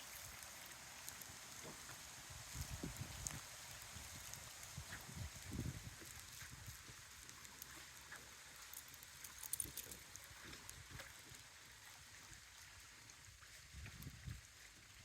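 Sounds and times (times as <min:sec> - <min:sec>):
wind buffeting microphone: 0:02.5 - 0:03.4, 0:04.0 - 0:06.7.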